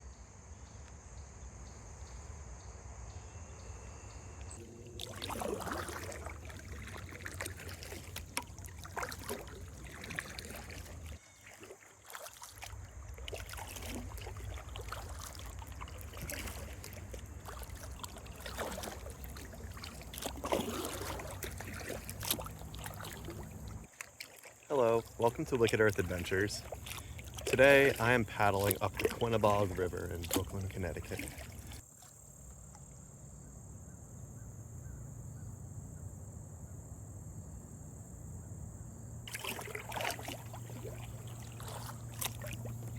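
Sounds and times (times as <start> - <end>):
paddle strokes swishing in water: 4.6 - 32.8, 39.3 - 42.9.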